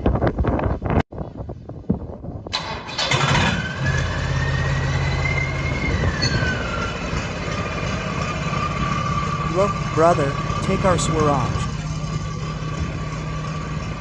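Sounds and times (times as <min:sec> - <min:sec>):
diesel engine cranking and starting: 0:02.5 - 0:14.0
diesel engine idling: 0:02.9 - 0:14.0.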